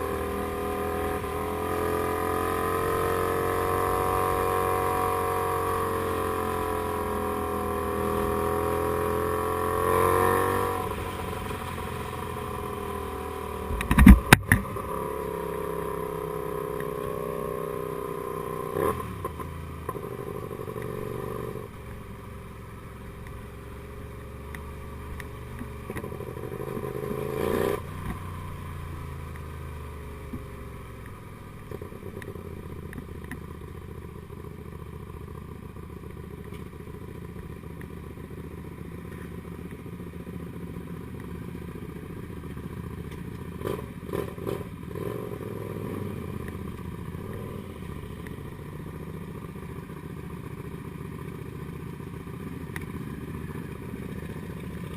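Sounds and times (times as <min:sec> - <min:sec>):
motorcycle engine revving: 0:00.0 - 0:21.8, 0:23.4 - 0:31.0, 0:41.1 - 0:54.9.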